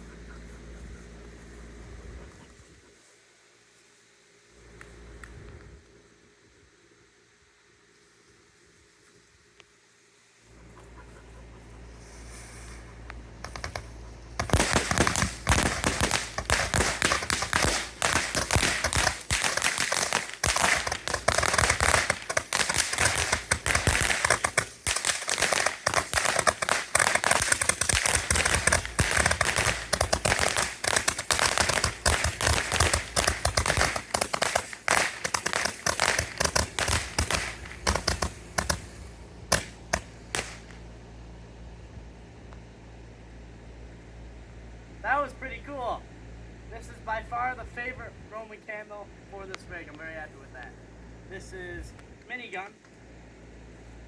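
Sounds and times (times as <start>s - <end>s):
roman candle firing rapid pops: 13.4s - 40.8s.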